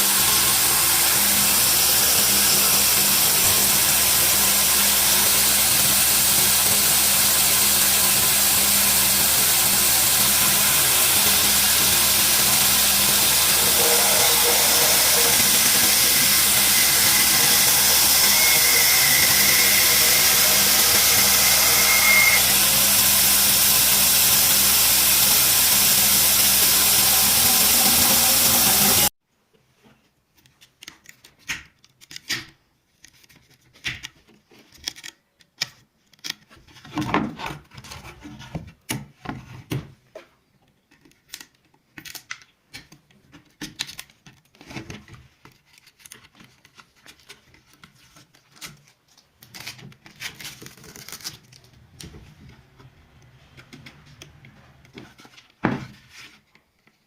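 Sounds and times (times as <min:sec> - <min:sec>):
power tool on wood: 0:00.0 - 0:29.1.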